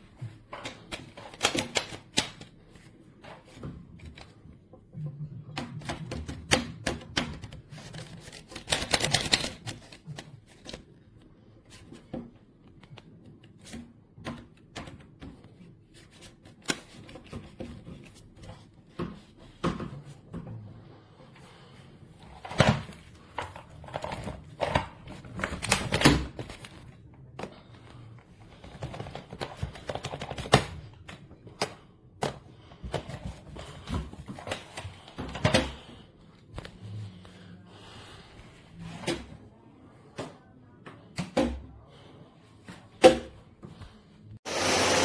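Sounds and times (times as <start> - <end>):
vacuum cleaner motor running: 44.4 - 45.0.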